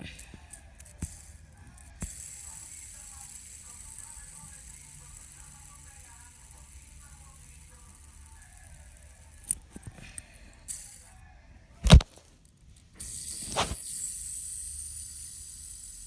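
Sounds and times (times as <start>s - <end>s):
steady hiss: 13.0s - 16.0s.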